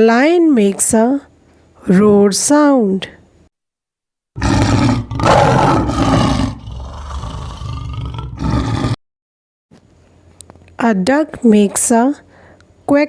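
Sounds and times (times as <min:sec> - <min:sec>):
lion roaring: 0:04.4 - 0:09.0.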